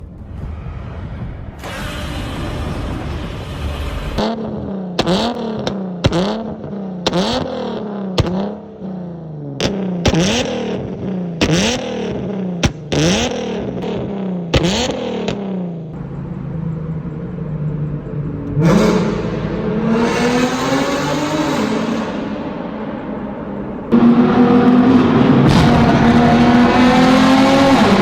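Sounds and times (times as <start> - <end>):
exhaust cracks: 1.5 - 16.6
car engine revving: 1.6 - 28.0
car engine idling: 15.2 - 19.9.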